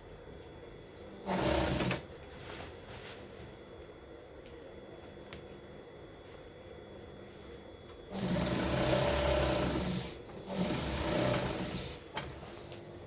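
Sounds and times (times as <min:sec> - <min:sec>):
sewing machine stitching: 0:01.1 - 0:02.1, 0:08.1 - 0:12.4.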